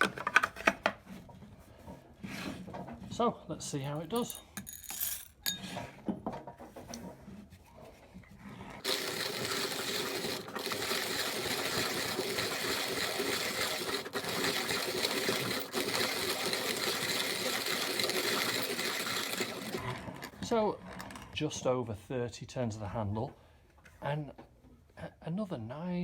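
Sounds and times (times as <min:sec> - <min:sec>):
coffee grinder crunching beans: 0:08.8 - 0:21.2.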